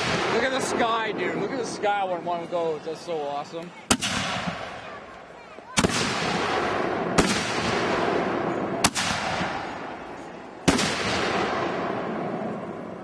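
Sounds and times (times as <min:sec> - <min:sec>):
firework mortar bangs: 0:00.0 - 0:01.8, 0:03.8 - 0:05.1, 0:05.7 - 0:13.0.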